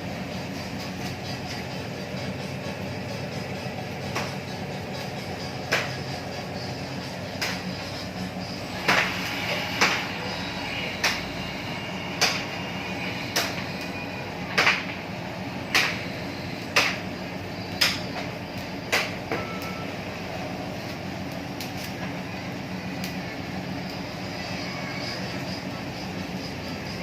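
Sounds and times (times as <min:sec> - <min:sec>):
machine motor humming: 0:00.0 - 0:27.0.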